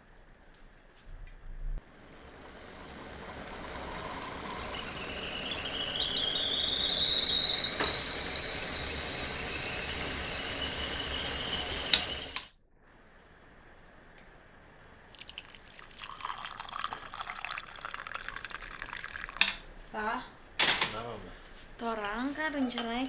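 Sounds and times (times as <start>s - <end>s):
kettle whistle rising in pitch: 2.3s - 12.6s.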